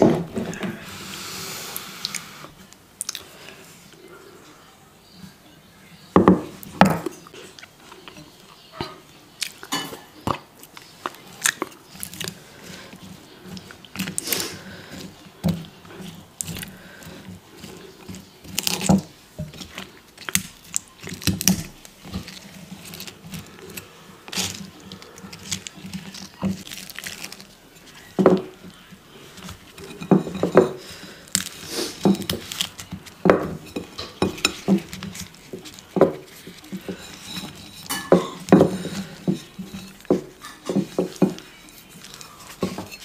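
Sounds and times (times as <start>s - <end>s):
chewing and crunching food: 1.8s - 3.6s, 6.6s - 43.0s.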